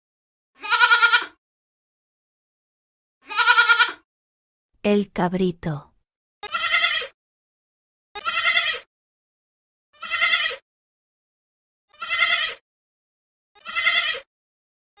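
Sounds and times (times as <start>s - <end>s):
goat kid bleating: 0.6s - 1.4s, 3.2s - 4.0s, 6.4s - 7.2s, 8.2s - 8.9s, 10.0s - 10.6s, 11.9s - 12.6s, 13.6s - 14.3s.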